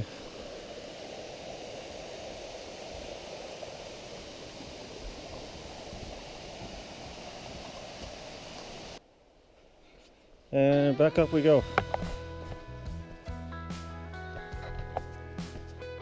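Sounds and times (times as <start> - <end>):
stream water rushing: 0.0 - 9.0.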